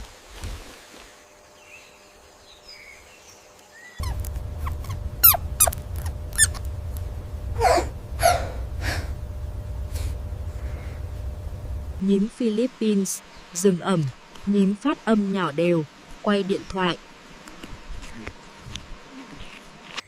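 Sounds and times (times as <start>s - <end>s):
small animal squeaking: 4.0s - 6.7s
low rumble: 4.0s - 12.0s.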